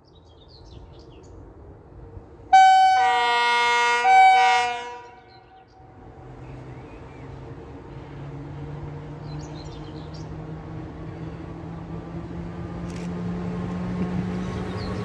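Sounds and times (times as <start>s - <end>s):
electric train approaching hum: 0.0s - 15.0s
bird chirping: 14.4s - 15.0s.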